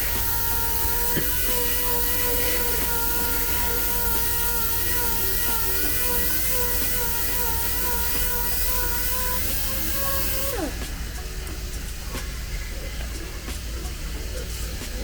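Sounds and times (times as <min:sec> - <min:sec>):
power tool motor running: 0:00.0 - 0:11.1.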